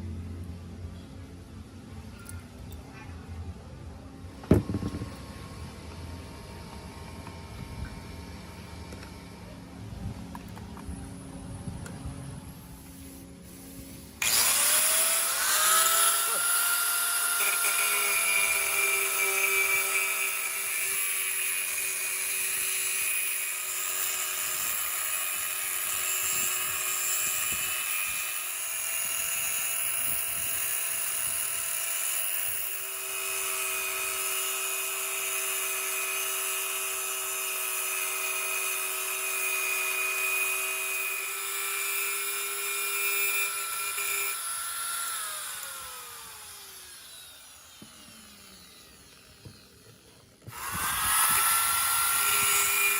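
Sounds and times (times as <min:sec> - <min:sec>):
electric power tool whining: 0:13.8 - 0:52.9.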